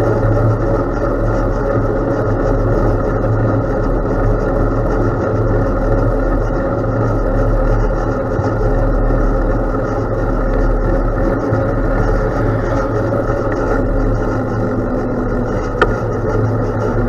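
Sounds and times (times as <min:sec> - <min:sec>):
wind on microphone: 0:00.0 - 0:17.0
bicycle tyres rumbling on gravel: 0:10.8 - 0:16.4.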